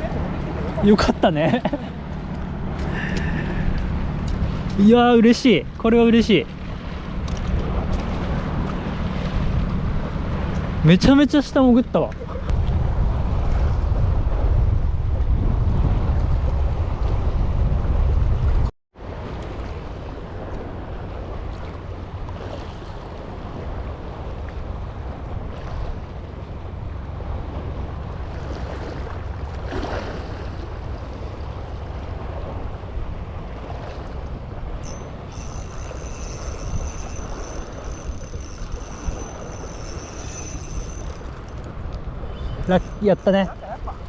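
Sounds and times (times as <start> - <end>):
sea waves: 0.0 - 13.6, 19.0 - 44.0
wind buffeting microphone: 12.1 - 19.3
faint high steady tones: 34.8 - 41.7, 42.6 - 43.6.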